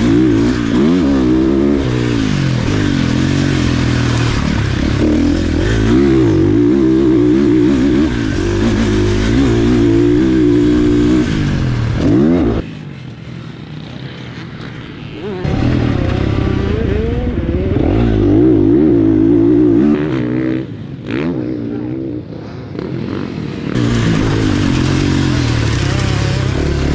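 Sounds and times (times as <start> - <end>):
dirt bike engine revving: 0.0 - 26.9.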